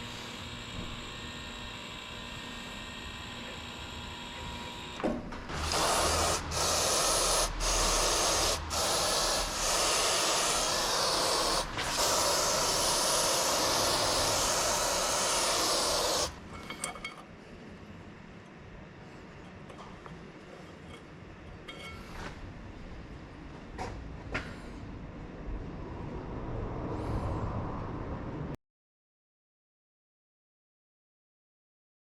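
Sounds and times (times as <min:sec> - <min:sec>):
aerosol spray hissing: 0:05.6 - 0:16.4.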